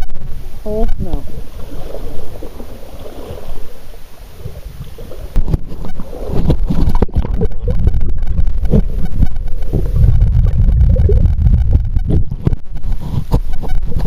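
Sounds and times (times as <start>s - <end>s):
creek water splashing: 0.6s - 10.0s
microphone handling rumble: 4.3s - 14.0s.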